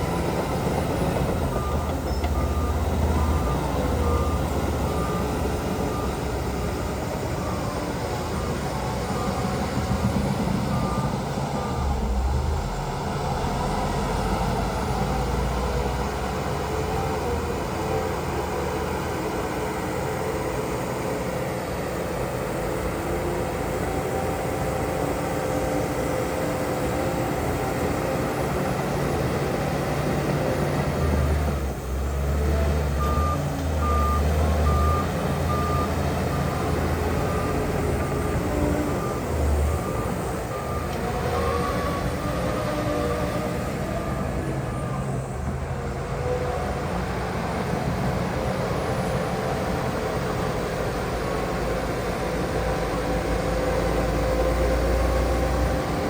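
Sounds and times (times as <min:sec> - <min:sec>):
truck reversing beeper: 0:00.0 - 0:21.3, 0:25.7 - 0:46.9
heavy diesel machinery rumbling: 0:00.0 - 0:56.0.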